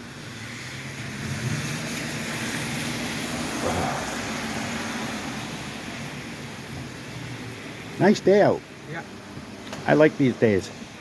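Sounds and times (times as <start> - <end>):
tyre hiss on wet road: 0.0 - 11.0.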